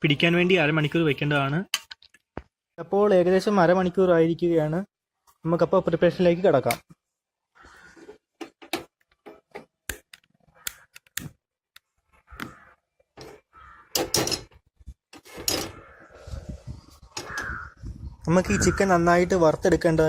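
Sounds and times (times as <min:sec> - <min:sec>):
pan bumping and scraping: 0:13.2 - 0:15.9.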